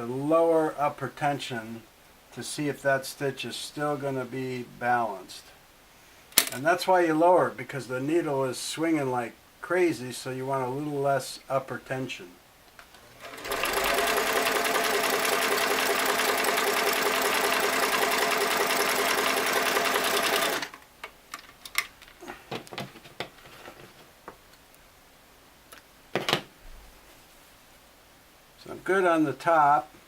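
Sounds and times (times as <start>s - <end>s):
sewing machine stitching: 13.0s - 20.8s.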